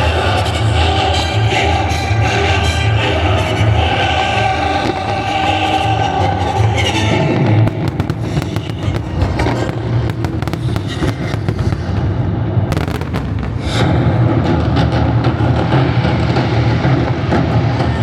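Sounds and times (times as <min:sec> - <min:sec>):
music: 0:00.0 - 0:18.0
fireworks cracking and popping: 0:04.7 - 0:15.7.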